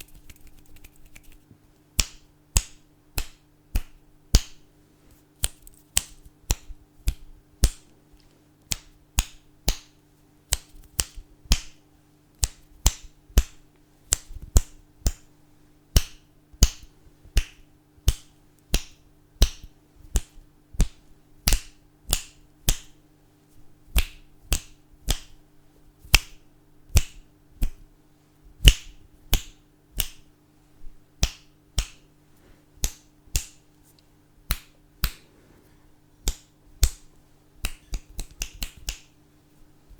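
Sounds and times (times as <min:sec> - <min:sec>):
fingers snapping: 0:00.0 - 0:04.6, 0:05.4 - 0:11.8, 0:12.4 - 0:15.3, 0:15.9 - 0:23.0, 0:23.9 - 0:25.4, 0:26.1 - 0:27.8, 0:28.6 - 0:30.3, 0:31.2 - 0:32.1, 0:32.8 - 0:33.7, 0:34.4 - 0:35.3, 0:36.2 - 0:39.2
faint steady low hum: 0:00.0 - 0:39.9.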